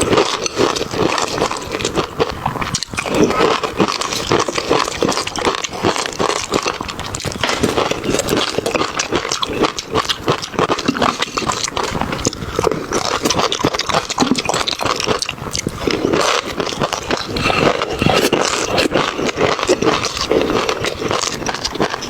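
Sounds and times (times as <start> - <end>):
chewing and mouth smacking: 0.0 - 22.0.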